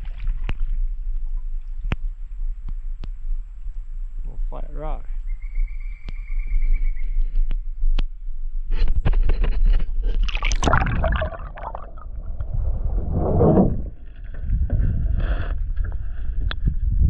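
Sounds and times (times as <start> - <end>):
steady low rumble: 0.7 - 5.3, 9.4 - 17.0
paddle strokes splashing: 10.2 - 12.7.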